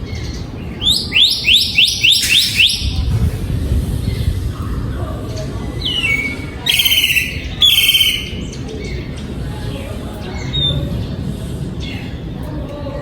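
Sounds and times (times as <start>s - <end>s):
bird singing whistled note: 0.8s - 3.0s, 5.9s - 8.5s.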